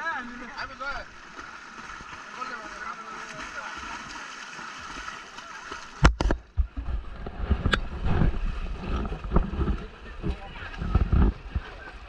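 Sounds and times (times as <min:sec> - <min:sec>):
rough low rumble: 0:06.1 - 0:12.0.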